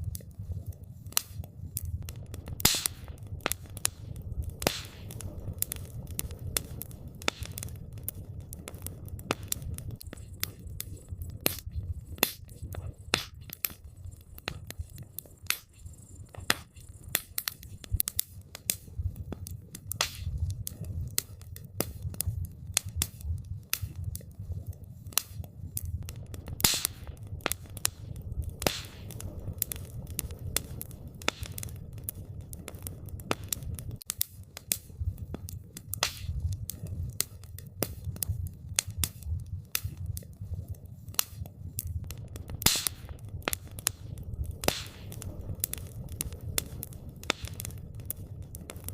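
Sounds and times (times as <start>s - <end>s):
wood fire crackling and popping: 0.0s - 48.9s.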